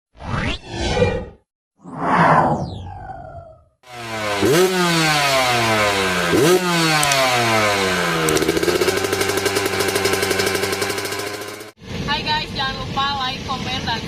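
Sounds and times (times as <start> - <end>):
dirt bike engine revving: 3.9 - 11.8.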